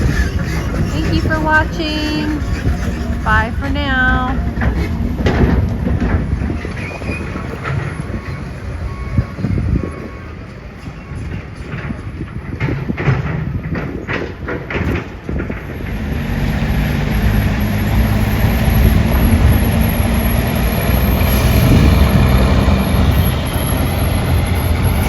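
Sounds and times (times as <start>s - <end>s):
heavy vehicle engine rumbling: 0.0s - 25.0s.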